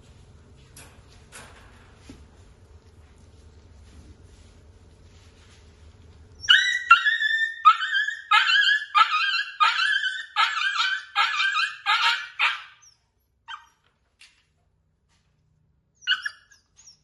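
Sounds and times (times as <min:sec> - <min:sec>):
puppy yelping: 0:06.4 - 0:13.9, 0:16.0 - 0:17.0.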